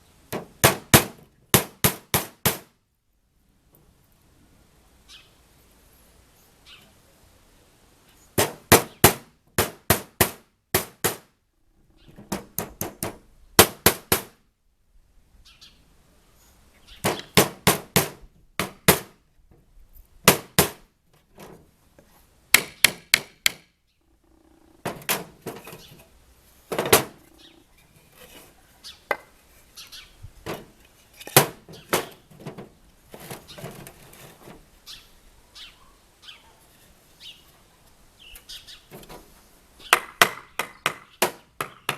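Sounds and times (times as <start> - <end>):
hammer driving nails into wood: 0.3 - 2.7, 8.4 - 11.3, 12.2 - 14.4, 17.0 - 19.1, 20.3 - 20.8, 22.6 - 23.7, 24.9 - 25.8, 26.7 - 27.2, 31.3 - 32.2, 39.9 - 41.9.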